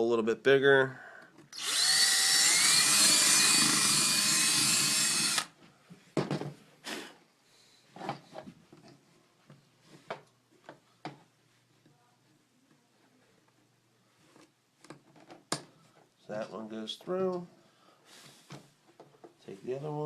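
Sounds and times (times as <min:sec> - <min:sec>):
power drill boring: 0:01.5 - 0:05.6.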